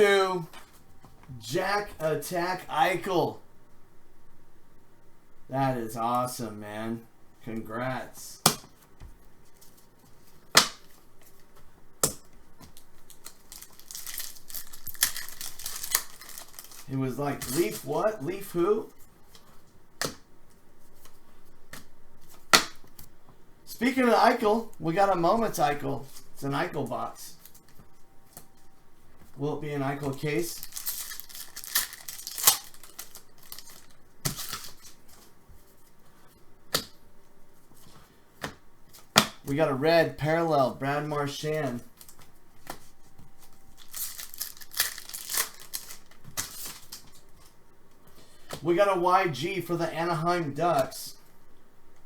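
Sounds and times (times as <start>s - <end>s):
cards rustling: 12.6s - 19.8s, 27.3s - 36.0s, 41.6s - 48.6s
foil wrapper crinkling and tearing: 12.8s - 18.1s, 30.0s - 35.1s, 43.4s - 47.4s
trading cards clicking: 30.0s - 35.0s.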